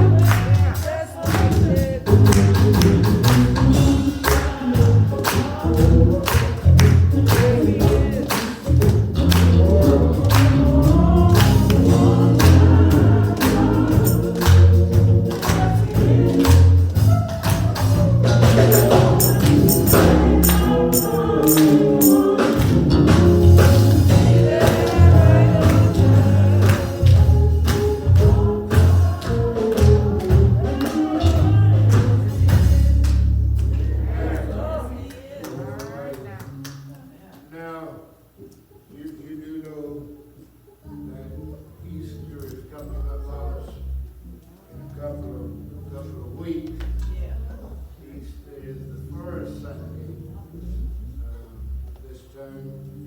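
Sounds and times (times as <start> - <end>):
bass line: 0.0 - 0.8, 1.4 - 34.8
gospel singing: 0.0 - 37.7
tambourine-like percussion: 11.4 - 33.0.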